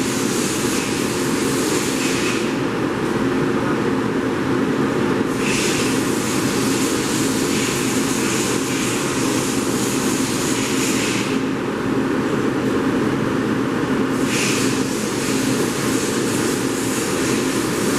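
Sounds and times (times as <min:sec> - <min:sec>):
higher mechanical hiss: 0:14.1 - 0:17.9.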